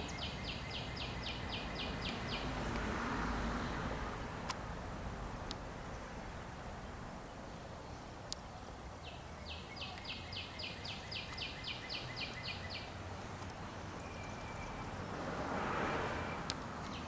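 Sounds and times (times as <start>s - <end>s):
cardinal whistling song: 14.0s - 14.9s.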